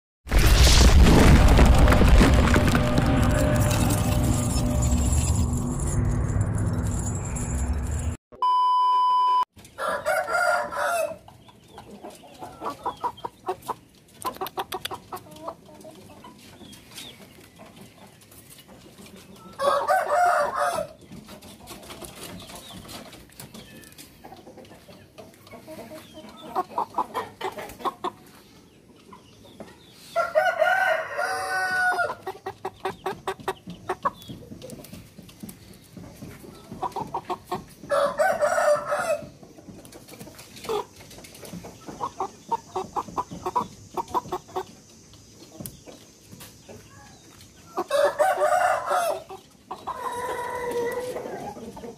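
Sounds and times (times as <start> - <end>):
intro music: 2.6 - 8.2
electronic beep: 8.4 - 9.5
rooster crowing: 9.8 - 11.2, 19.6 - 20.9, 30.2 - 32.2, 37.9 - 39.3, 47.8 - 49.3
chicken clucking: 9.8 - 51.9.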